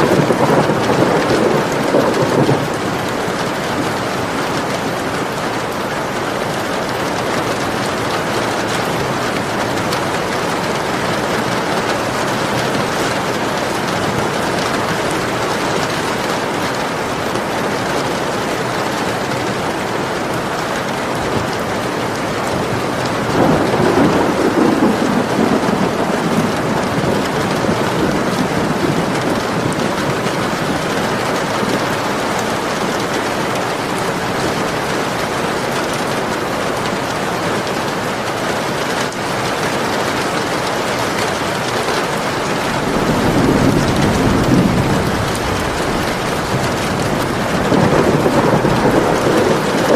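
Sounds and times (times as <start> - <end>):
low thunder rolls: 0.0 - 4.3, 22.4 - 35.7, 42.3 - 49.9
steady rain falling: 0.0 - 49.9.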